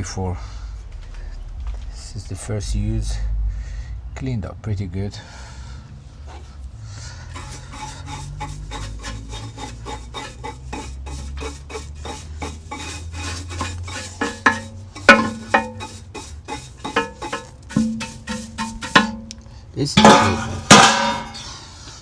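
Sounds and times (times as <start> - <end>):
rasping scrapes of ash: 7.3 - 21.6
ringing metal clanks: 7.4 - 21.6.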